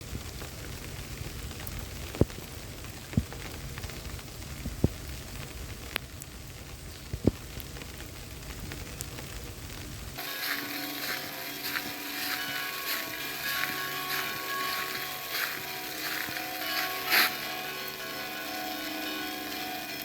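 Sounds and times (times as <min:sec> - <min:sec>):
volcanic ash pattering down: 0:00.0 - 0:20.0
sharp ticks of fragments: 0:10.2 - 0:20.0.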